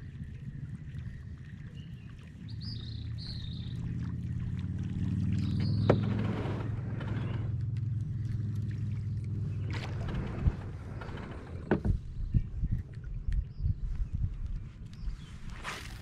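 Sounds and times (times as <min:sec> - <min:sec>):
low steady hum: 0:00.0 - 0:16.0
bird chirps: 0:01.8 - 0:03.8, 0:05.4 - 0:06.1.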